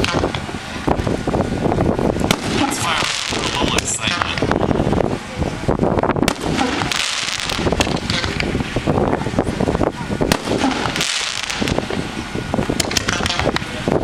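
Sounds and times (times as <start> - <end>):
fireworks bangs and pops: 0.0 - 1.1, 2.2 - 4.6, 6.2 - 8.6, 10.2 - 13.8.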